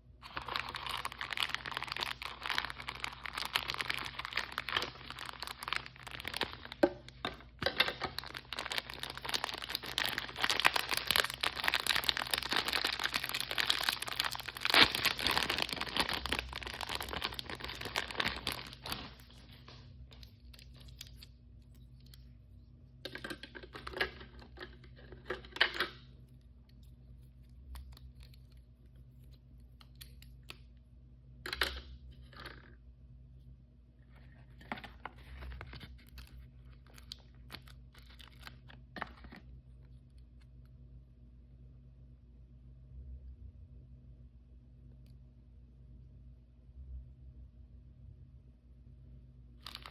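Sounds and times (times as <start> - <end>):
plastic packaging crinkling: 0.2 - 22.2, 34.3 - 39.4, 49.6 - 49.9.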